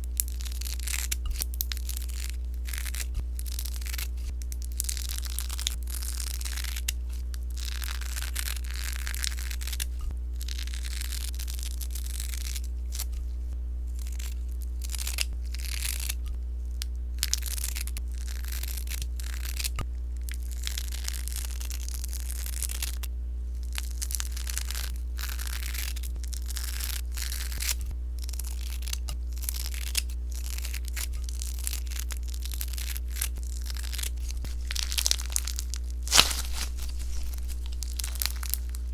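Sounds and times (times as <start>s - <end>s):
slime crackling and popping: 23.7s - 38.9s
steady low hum: 30.0s - 38.9s.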